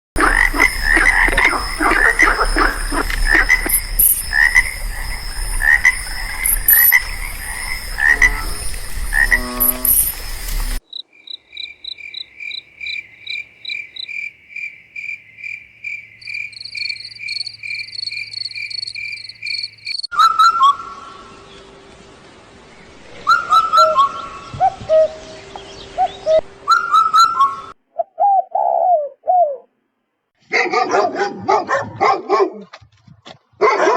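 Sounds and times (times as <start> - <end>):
high pulsed call: 0.2 - 10.8
frogs croaking in chorus: 0.2 - 20.2
short repeated calls: 7.9 - 11.0.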